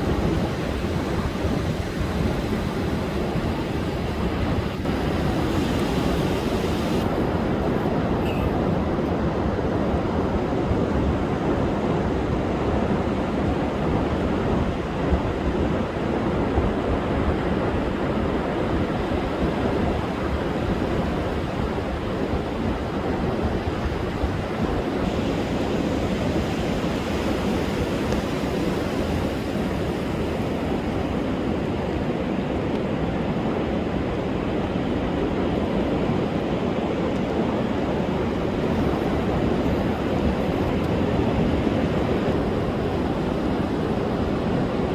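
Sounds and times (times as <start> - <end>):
surf crashing on beach: 0.0 - 44.9
wind buffeting microphone: 0.0 - 44.9.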